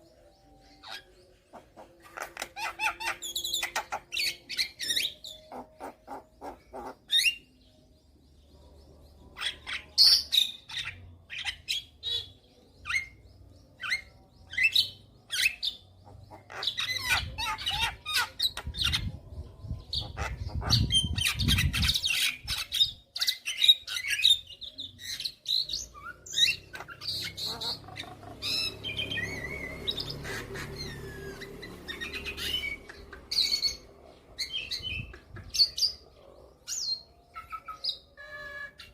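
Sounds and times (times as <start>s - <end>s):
myna chirping and chattering: 0.8s - 7.4s, 15.3s - 36.1s.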